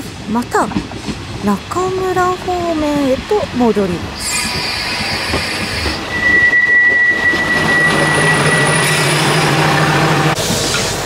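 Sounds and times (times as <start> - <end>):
train brakes squealing: 4.2 - 11.0.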